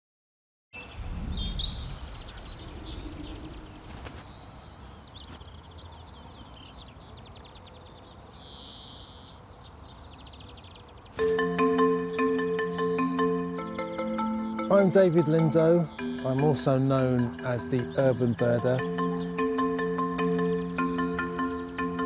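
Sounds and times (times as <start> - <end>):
songbirds chirping and trilling: 0.8 - 22.0
music with held notes: 11.2 - 22.0.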